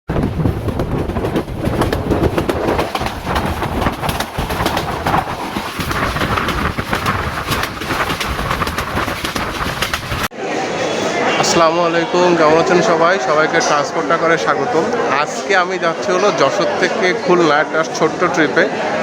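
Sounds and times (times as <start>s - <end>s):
rapid clicking and clatter: 0.1s - 10.3s
train rumbling on rails: 0.1s - 10.3s.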